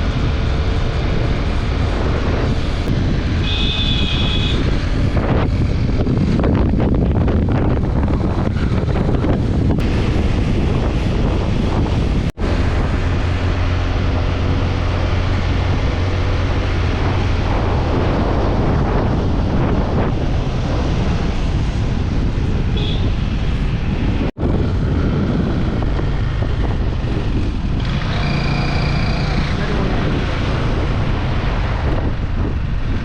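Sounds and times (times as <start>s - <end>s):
wind buffeting microphone: 0.0s - 33.0s
motorcycle engine running: 24.4s - 31.4s.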